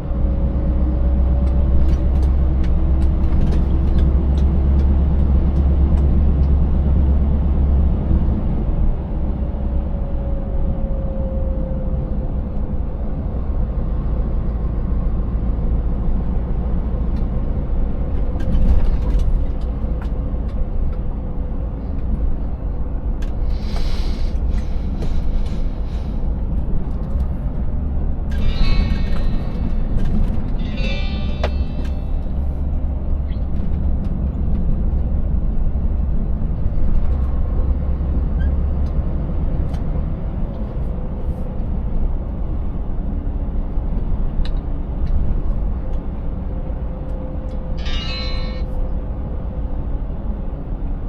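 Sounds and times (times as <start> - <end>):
road rumble: 0.0 - 51.0
truck engine drone: 0.0 - 51.0
truck rattling and knocking: 1.1 - 7.1, 16.7 - 23.4, 24.4 - 41.1
short hiss: 23.5 - 25.4.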